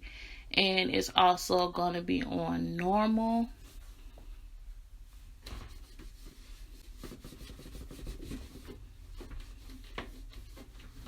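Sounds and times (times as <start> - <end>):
faint rubbing and clicks: 5.1 - 11.0.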